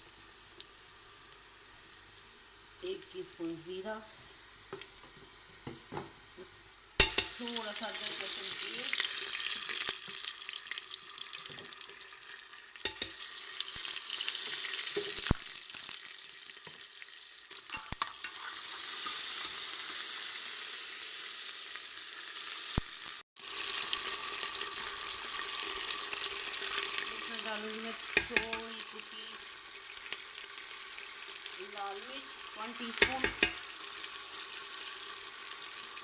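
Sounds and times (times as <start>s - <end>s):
onions sizzling in ghee: 0.0s - 36.0s
spoon stirring against metal pot: 7.0s - 7.4s, 12.8s - 13.2s, 27.9s - 29.0s, 32.7s - 33.7s.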